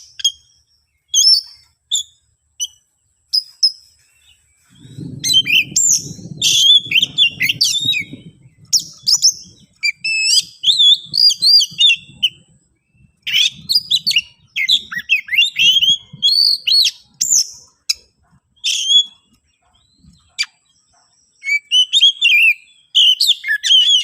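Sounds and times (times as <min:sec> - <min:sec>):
bird singing whistles and chirps: 0:00.0 - 0:24.0.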